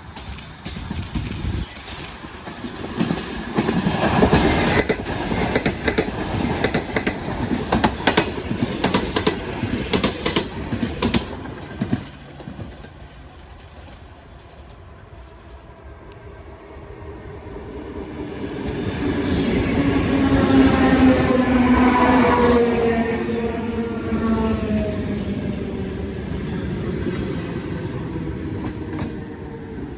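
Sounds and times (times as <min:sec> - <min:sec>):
train rumble: 0:00.0 - 0:29.9
train wheels clacking over rail joints: 0:00.2 - 0:14.8.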